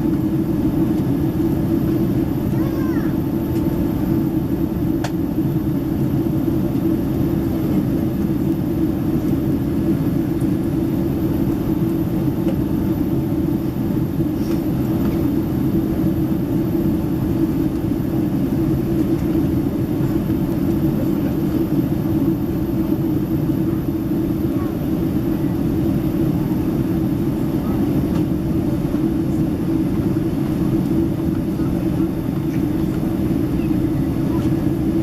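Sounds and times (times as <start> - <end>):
airplane cabin roar: 0.0 - 35.0.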